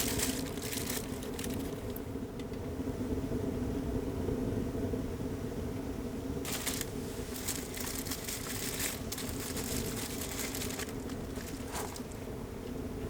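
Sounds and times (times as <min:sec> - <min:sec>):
crinkling rustling of handling: 0:00.0 - 0:02.0, 0:06.5 - 0:12.2
steady low hum: 0:00.0 - 0:13.0.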